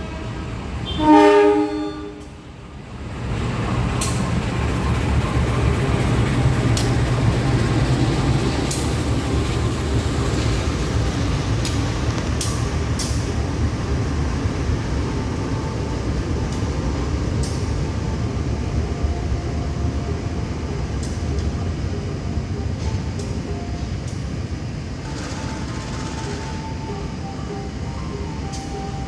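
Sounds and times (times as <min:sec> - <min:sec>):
train rumbling: 0:00.0 - 0:29.0
sharp clicks of train wheels: 0:03.1 - 0:18.5, 0:20.8 - 0:21.6, 0:22.8 - 0:27.3.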